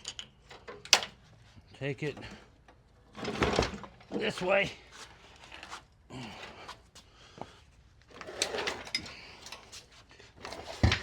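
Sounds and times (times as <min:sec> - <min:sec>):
metal scraping and clunking: 0:08.1 - 0:09.8.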